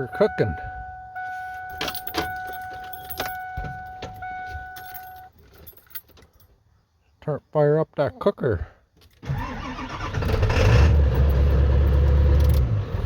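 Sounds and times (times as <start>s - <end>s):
dashboard warning tone: 0.0s - 5.4s.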